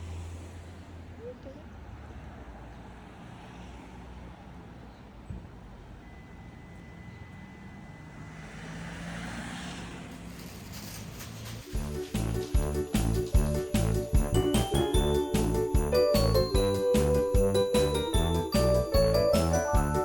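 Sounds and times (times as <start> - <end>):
vehicle engine rumbling: 9.9 - 20.0.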